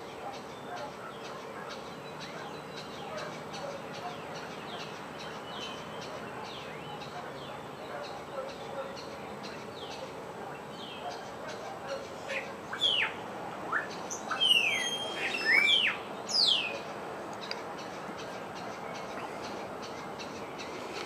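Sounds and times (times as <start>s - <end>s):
birds chirping: 0.0s - 21.0s
falling whistled bird calls: 12.7s - 16.7s.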